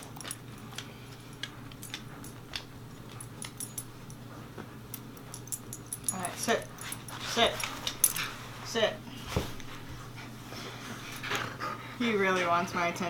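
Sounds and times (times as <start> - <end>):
light clicks and jingles: 0.0 - 4.3, 4.9 - 8.3
faint steady hum: 0.0 - 13.0.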